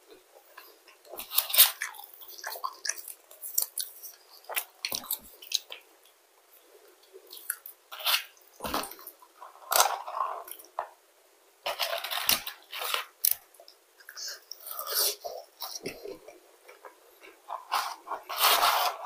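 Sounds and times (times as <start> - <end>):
chewing and crunching fries: 0.1 - 10.8
paper carton rustling: 17.6 - 19.0.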